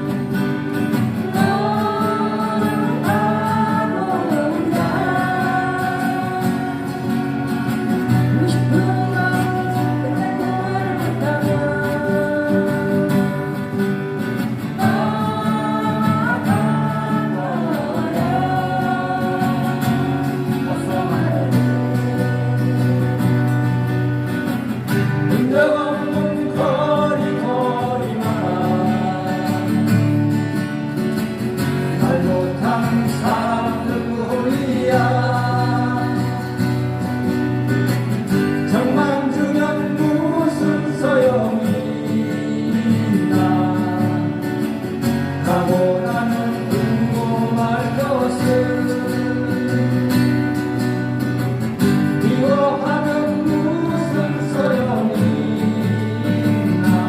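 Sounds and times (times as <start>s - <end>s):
strummed acoustic guitars: 0.0s - 57.0s
person singing: 1.0s - 23.8s, 25.3s - 30.1s, 32.0s - 37.0s, 38.7s - 44.6s, 45.4s - 50.5s, 52.2s - 57.0s.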